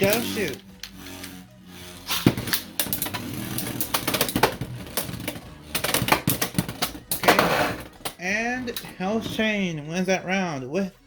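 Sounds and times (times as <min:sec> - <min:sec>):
spinning tops clacking together: 0:00.0 - 0:08.2.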